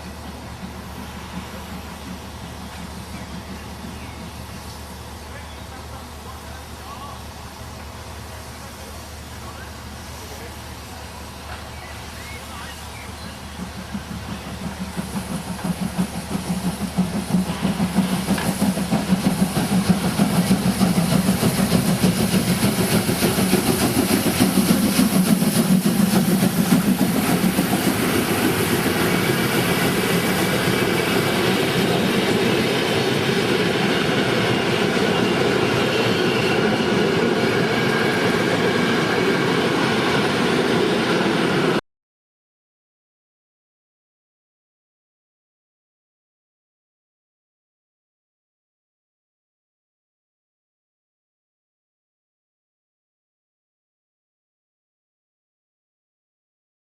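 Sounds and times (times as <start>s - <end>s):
train running by: 0.0s - 41.8s.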